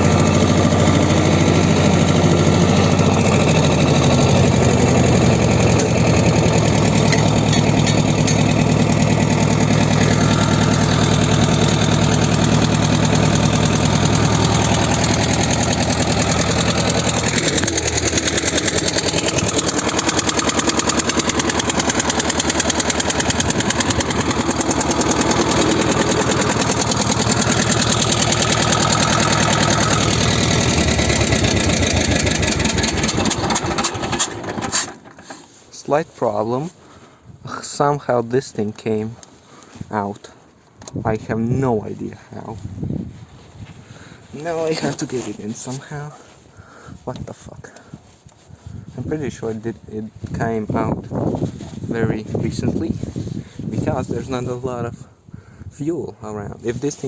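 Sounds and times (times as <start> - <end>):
diesel tractor idling: 0.0 - 35.7.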